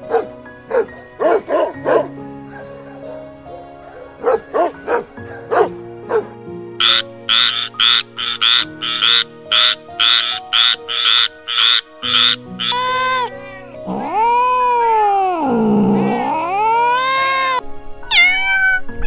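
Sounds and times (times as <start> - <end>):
background music: 0.0 - 19.0
frog croaking: 6.8 - 14.2.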